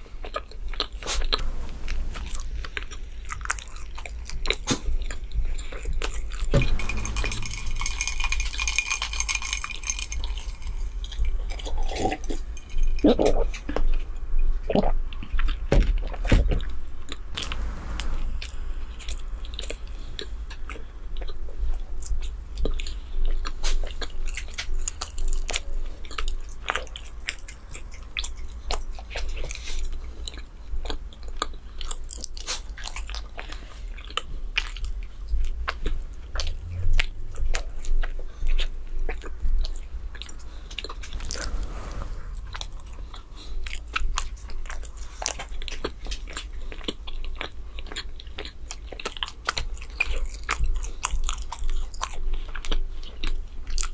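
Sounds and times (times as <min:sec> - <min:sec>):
biting and chewing bread: 0:42.5 - 0:53.9.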